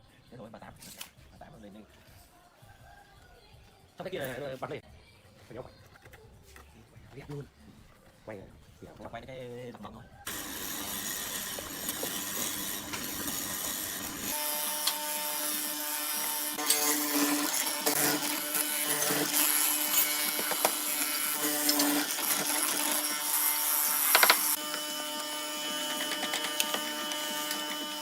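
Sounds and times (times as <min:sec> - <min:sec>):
tool rasping wood: 0:10.3 - 0:28.0.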